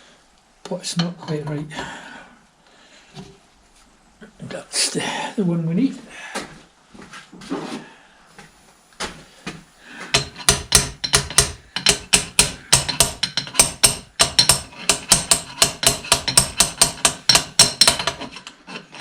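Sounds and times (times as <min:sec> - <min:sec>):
hammer tapping on metal: 0:09.5 - 0:18.4.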